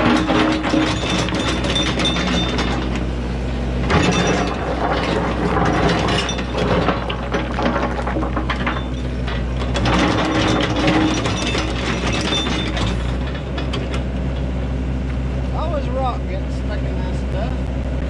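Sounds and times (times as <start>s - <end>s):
clatter of metal and gravel: 0.0s - 3.1s, 3.8s - 14.6s
excavator diesel engine running: 0.0s - 18.0s.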